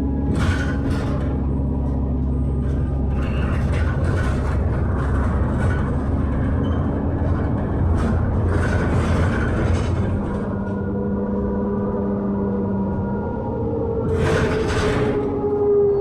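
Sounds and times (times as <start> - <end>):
bus engine and road rumble: 0.0 - 16.0
rattles of bus fittings: 0.1 - 11.3.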